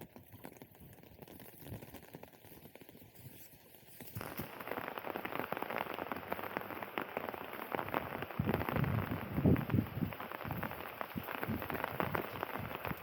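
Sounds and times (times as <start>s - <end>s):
heavy rain pattering: 4.0s - 13.0s.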